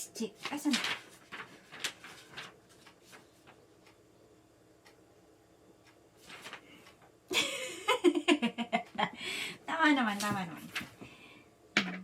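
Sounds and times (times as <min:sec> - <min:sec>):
rustling: 0:00.4 - 0:03.6.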